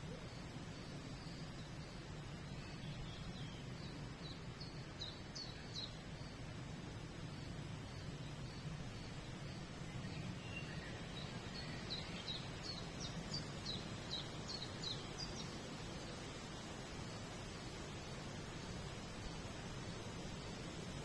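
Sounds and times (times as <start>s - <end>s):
songbird singing: 0.0s - 21.0s.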